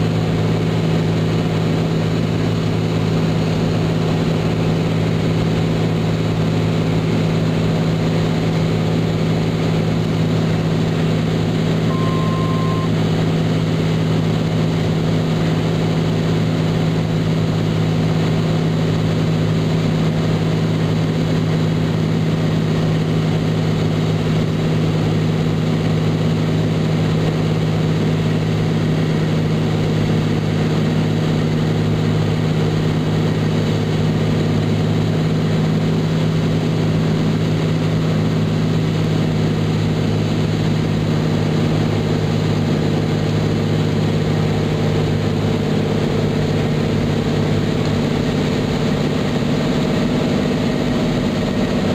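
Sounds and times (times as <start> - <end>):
airplane engine droning in cabin: 0.0 - 51.9
short beep: 11.9 - 13.0.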